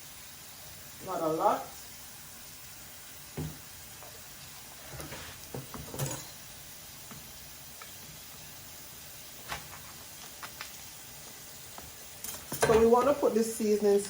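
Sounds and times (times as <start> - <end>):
faint hiss: 0.0 - 14.0
kitchen knocks and clicks: 5.0 - 6.3, 12.2 - 13.2.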